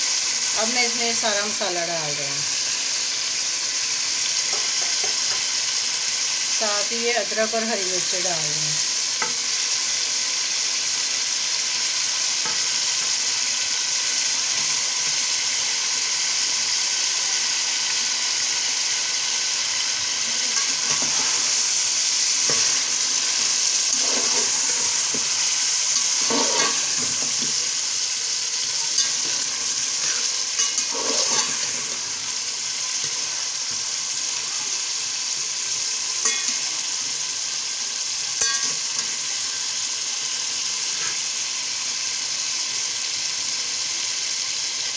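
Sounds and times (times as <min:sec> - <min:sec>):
meat and potatoes sizzling in a pot: 0:00.0 - 0:44.9
metal spatula scraping a pot: 0:20.3 - 0:21.6, 0:22.4 - 0:25.5, 0:26.1 - 0:27.6, 0:28.8 - 0:32.1.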